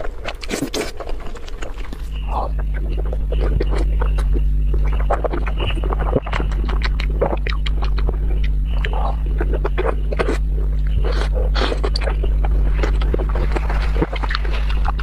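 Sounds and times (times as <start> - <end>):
steady low hum: 0.0 - 15.0
wet chewing smacks: 0.0 - 15.0.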